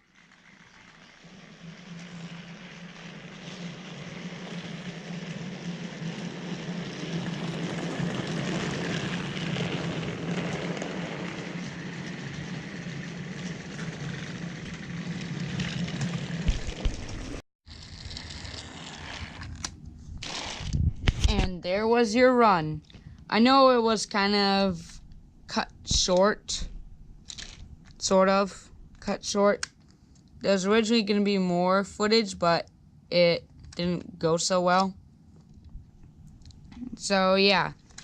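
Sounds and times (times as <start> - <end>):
toy train motor humming: 0.0 - 16.6
rough uneven noise: 0.0 - 21.6.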